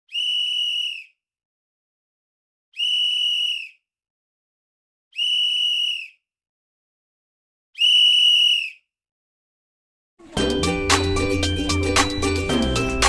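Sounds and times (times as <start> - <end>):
whistle blasts: 0.1 - 1.2, 2.8 - 3.8, 5.1 - 6.2, 7.8 - 8.8.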